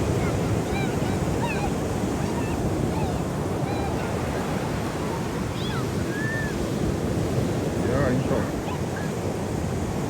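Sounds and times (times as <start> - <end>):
ocean surf washing onto beach: 0.0 - 10.0.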